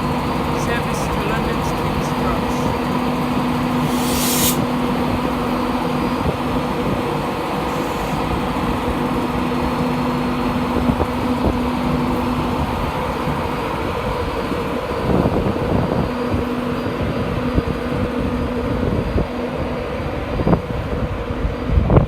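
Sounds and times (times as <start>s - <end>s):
train hum and rumble: 0.0s - 22.0s
brief hiss: 3.8s - 4.7s.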